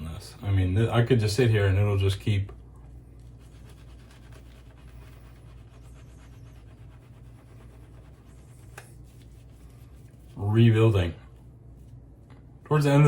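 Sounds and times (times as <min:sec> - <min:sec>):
shaving brush swishing lather: 0:03.1 - 0:11.1.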